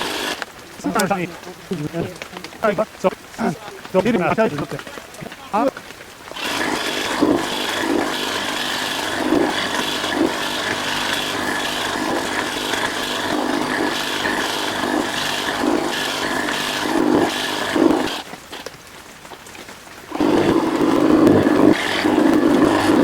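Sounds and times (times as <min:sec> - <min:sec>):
hedge trimmer cutting branches: 0:00.0 - 0:18.8, 0:20.1 - 0:23.0.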